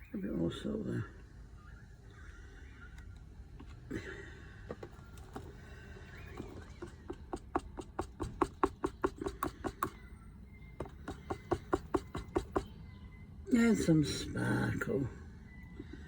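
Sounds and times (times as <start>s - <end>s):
stick knocking inside a cup: 6.7s - 10.0s, 10.8s - 12.7s.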